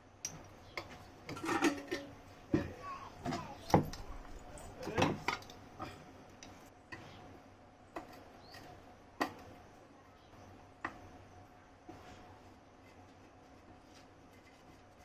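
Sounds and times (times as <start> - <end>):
fan parts clicking and knocking: 0.0 - 7.3, 7.9 - 9.8, 10.7 - 11.3.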